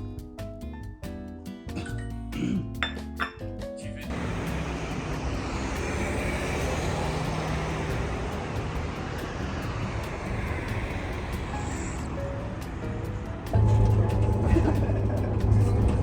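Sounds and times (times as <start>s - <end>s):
engine rumble: 4.0s - 16.0s
hissing noise: 4.1s - 12.4s.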